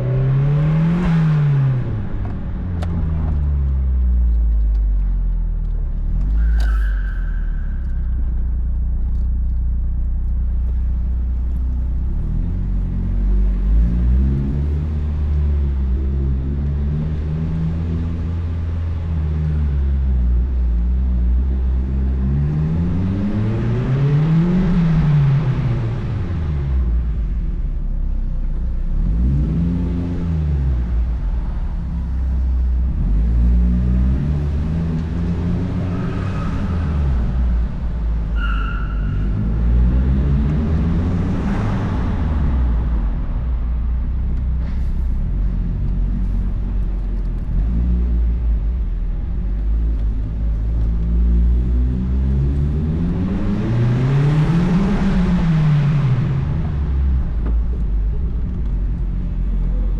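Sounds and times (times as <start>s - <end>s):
car engine revving: 28.8s - 59.9s.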